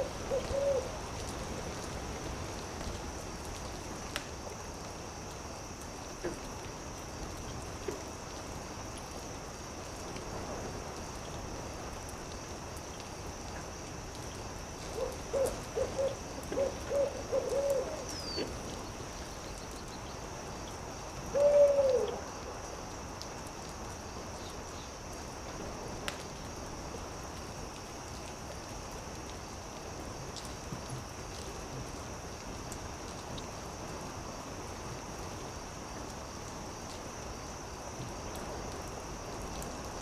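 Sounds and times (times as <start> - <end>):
owl hooting: 0.0 - 0.9, 15.0 - 18.5, 21.3 - 22.2
campfire crackling: 0.0 - 21.4, 22.1 - 40.0
steady hiss: 0.0 - 40.0.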